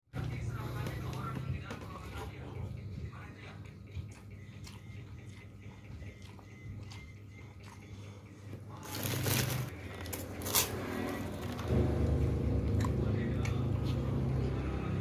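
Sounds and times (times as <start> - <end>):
mouth clicks and soft chewing: 3.1 - 8.7
crisp cracker crunch: 8.8 - 11.7.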